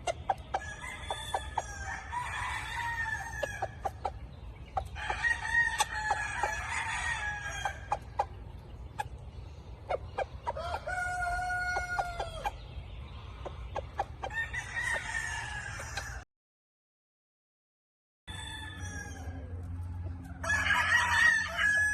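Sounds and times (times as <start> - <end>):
roosters crowing: 0.0 - 8.4, 10.4 - 12.7, 14.2 - 16.2, 18.3 - 21.9.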